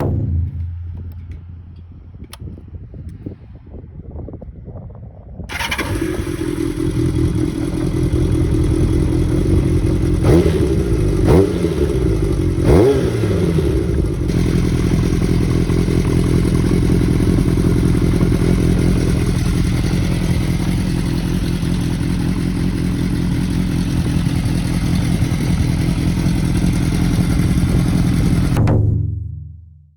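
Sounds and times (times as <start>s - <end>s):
motorcycle engine running: 0.0s - 2.4s, 5.5s - 28.8s
motorcycle engine cranking: 5.5s - 10.5s.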